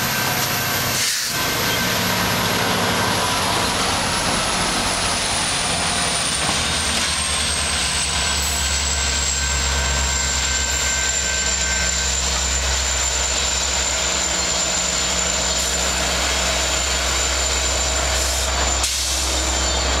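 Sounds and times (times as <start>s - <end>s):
diesel train engine humming: 0.0s - 20.0s.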